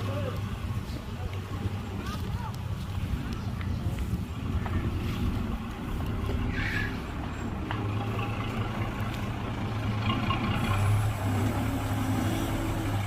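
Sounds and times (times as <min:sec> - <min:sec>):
diesel machinery engine running: 0:02.7 - 0:13.0.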